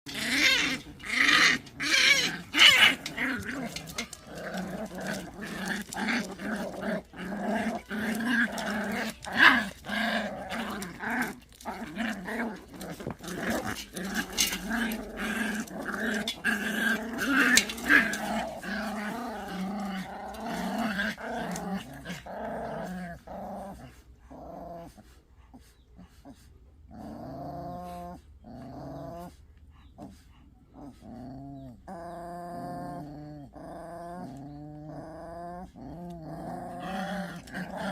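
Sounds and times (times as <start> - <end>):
dogs growling and snarling: 0.0 - 37.9
dogs snapping: 0.1 - 22.2.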